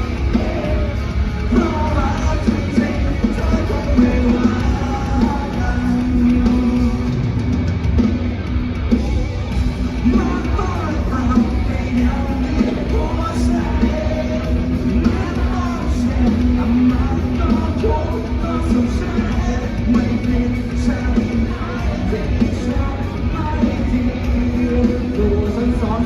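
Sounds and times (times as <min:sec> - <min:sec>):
rock band playing live: 0:00.0 - 0:26.0.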